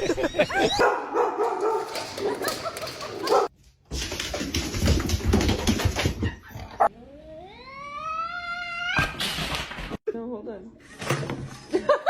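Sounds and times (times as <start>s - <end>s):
dog whimpering and barking: 0.3s - 2.6s.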